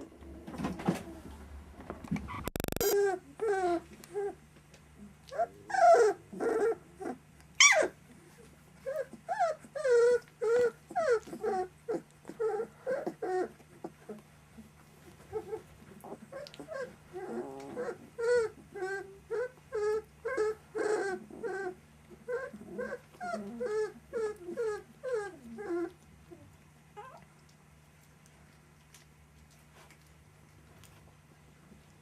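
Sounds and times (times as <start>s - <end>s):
puppies whimpering and whining: 2.2s - 4.4s, 5.0s - 14.2s, 15.1s - 27.4s.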